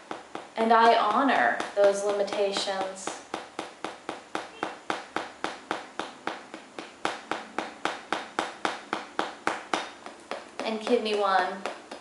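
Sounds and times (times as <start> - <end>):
small hammer tapping: 0.0 - 12.0.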